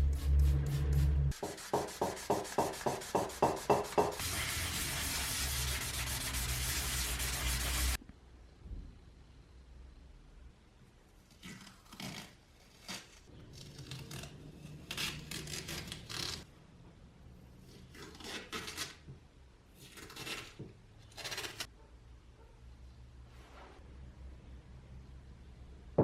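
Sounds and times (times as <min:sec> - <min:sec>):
rasping and rubbing strokes: 0:00.1 - 0:08.0.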